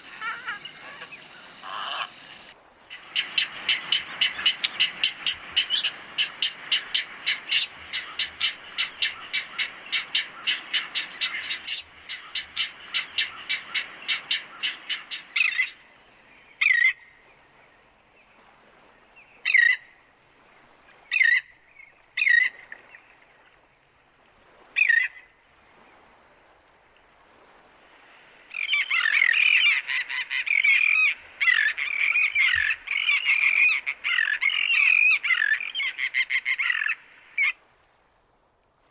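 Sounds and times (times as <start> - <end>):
birds chattering: 0.0 - 17.4, 28.2 - 37.3
birds calling: 0.0 - 23.5, 27.7 - 37.5.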